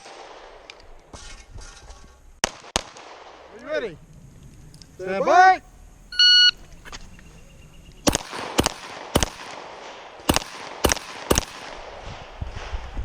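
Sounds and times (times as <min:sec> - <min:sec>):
pistol shots: 0:02.4 - 0:03.5, 0:08.0 - 0:12.4.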